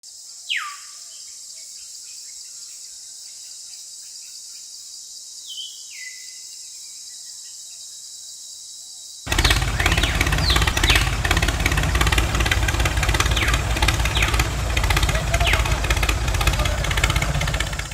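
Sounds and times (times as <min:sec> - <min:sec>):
birds chirping: 0:09.3 - 0:17.9
motor humming: 0:09.3 - 0:17.9.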